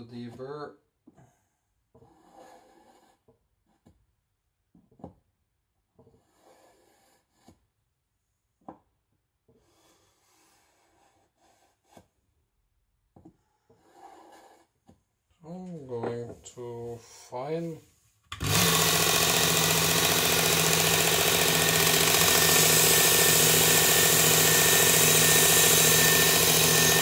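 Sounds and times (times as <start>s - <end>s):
knife scraping cutting board: 2.0s - 3.2s.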